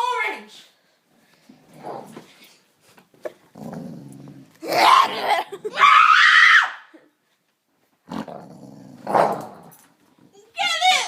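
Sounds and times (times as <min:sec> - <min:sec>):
dog growling low: 0:03.5 - 0:05.5, 0:08.1 - 0:09.6
high-pitched screams: 0:04.7 - 0:07.0.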